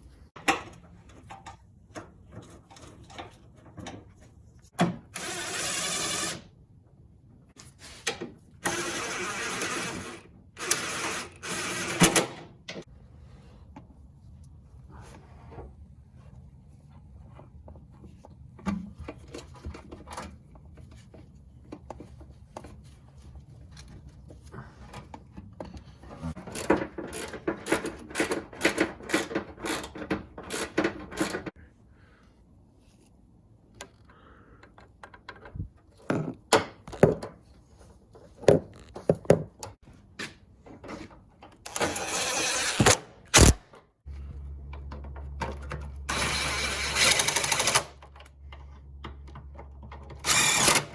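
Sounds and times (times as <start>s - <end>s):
sharp click: 42.8s - 43.6s.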